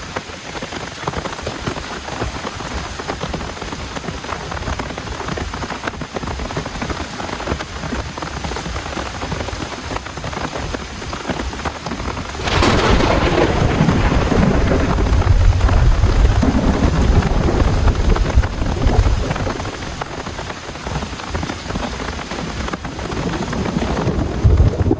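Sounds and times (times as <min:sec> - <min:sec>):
heavy rain falling: 0:00.0 - 0:24.9
thunderclap with deep rumble: 0:12.0 - 0:24.9.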